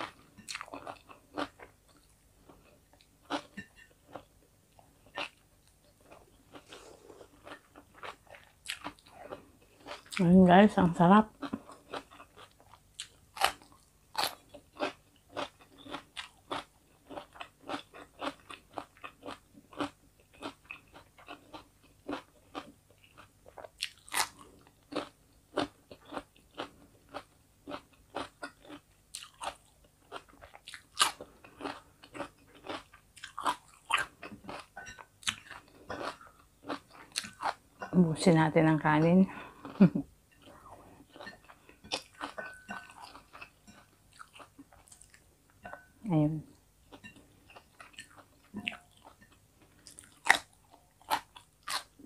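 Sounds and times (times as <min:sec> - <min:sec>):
cucumber crunching and chewing: 0:05.0 - 0:10.3, 0:11.3 - 0:37.6, 0:39.6 - 0:45.8, 0:46.9 - 0:52.0.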